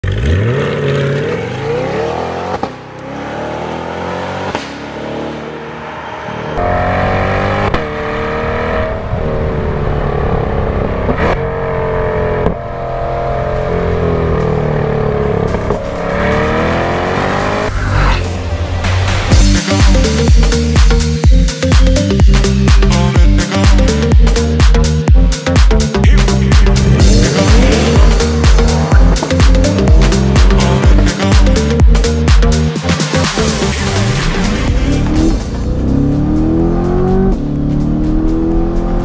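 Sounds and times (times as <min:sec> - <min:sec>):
car engine hard acceleration with gearshifts: 0:00.0 - 0:18.3, 0:34.2 - 0:39.0.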